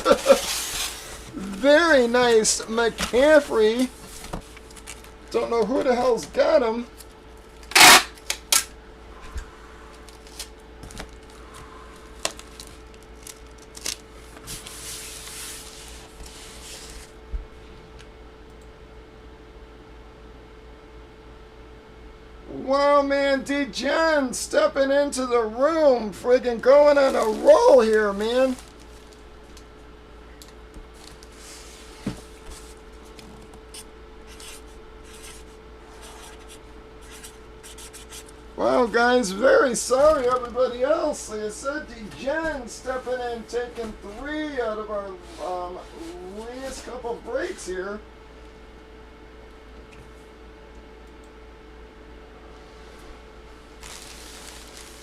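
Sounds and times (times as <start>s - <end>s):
packaging rubbing and scratching: 0.0s - 5.2s, 7.7s - 8.2s, 26.9s - 29.3s, 33.8s - 38.4s, 53.8s - 55.0s
faint steady hum: 0.0s - 55.0s.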